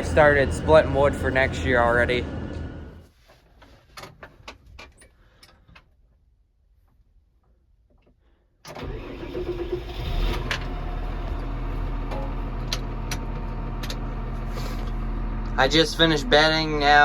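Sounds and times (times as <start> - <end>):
tractor engine running: 0.0 - 3.0, 8.8 - 17.0.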